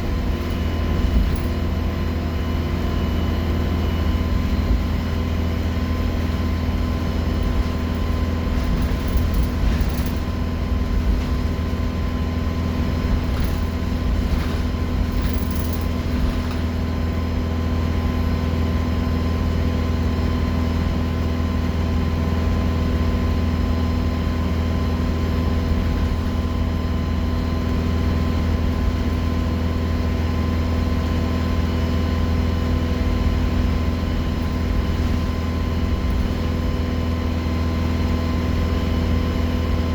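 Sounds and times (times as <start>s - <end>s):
bus diesel engine drone: 0.0s - 39.9s
light rattles: 6.1s - 17.3s.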